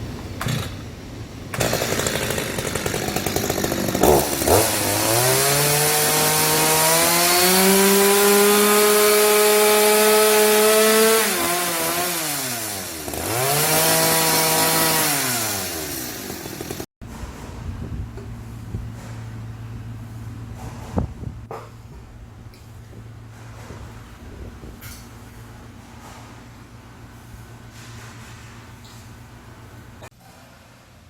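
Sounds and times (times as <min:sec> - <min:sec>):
power tool cutting wood: 0:00.4 - 0:00.8, 0:01.6 - 0:16.9.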